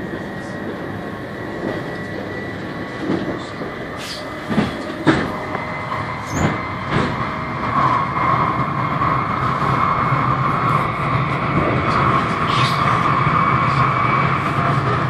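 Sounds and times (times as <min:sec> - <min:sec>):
train rumbling over bridge: 0:00.0 - 0:15.0
train wheel knocks: 0:04.5 - 0:05.4.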